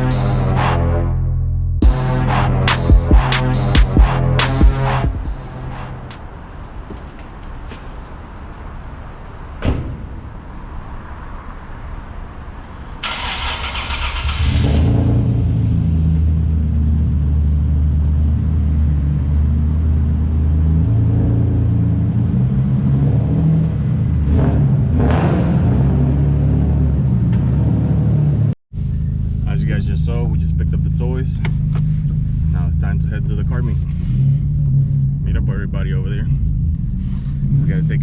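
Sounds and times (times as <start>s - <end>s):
car engine cranking: 13.0s - 15.0s.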